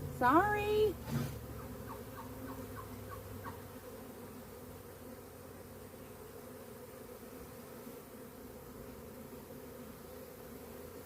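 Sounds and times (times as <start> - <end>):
honeybee swarm buzzing: 0.0 - 11.0.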